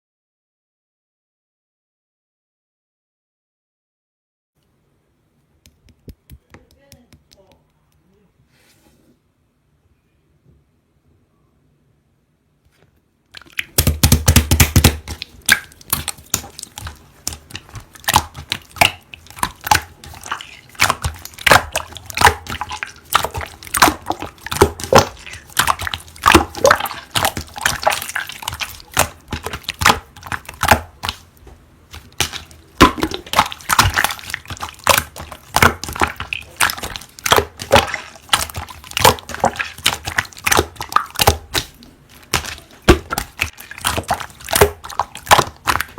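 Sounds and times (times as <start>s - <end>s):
hands squishing slime: 13.3s - 45.9s.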